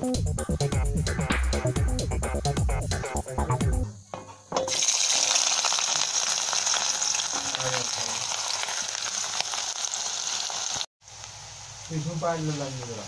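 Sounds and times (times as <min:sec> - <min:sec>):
electronic music: 0:00.0 - 0:03.9
food sizzling in hot oil: 0:04.7 - 0:13.0.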